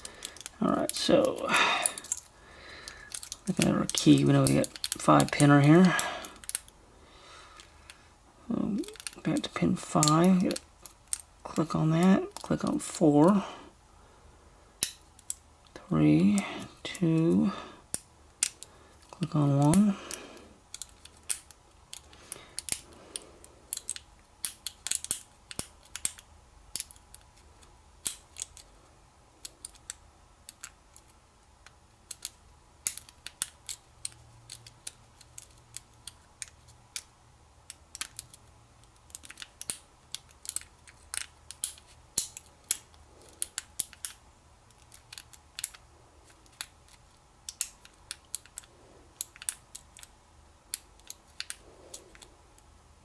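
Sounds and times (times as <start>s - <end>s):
lock pick clicking in padlock: 39.0s - 44.2s.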